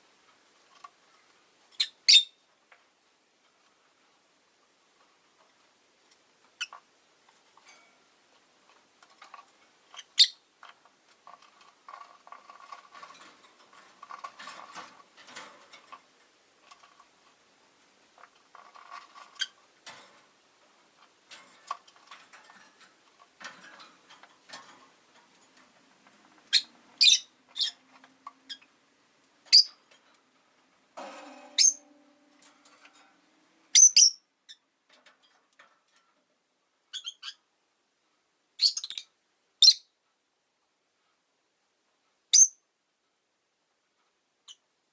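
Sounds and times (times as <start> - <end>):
lovebirds chirping: 1.8 - 2.4, 10.0 - 10.5, 26.5 - 28.7, 29.5 - 29.8, 33.7 - 34.6
soft scratching and clicking: 4.9 - 33.4.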